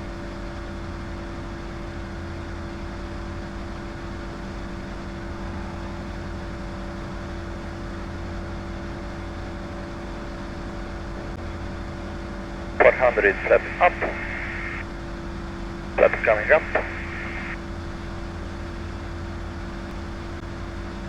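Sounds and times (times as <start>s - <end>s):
propeller plane engine drone: 12.8s - 14.8s, 16.0s - 17.6s.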